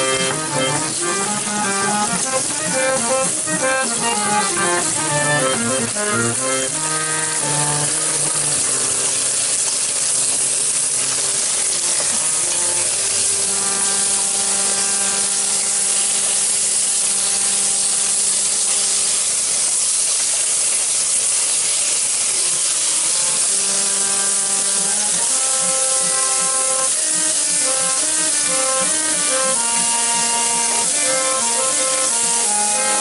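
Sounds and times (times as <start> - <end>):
okra sizzling in a pan: 0.0 - 33.0.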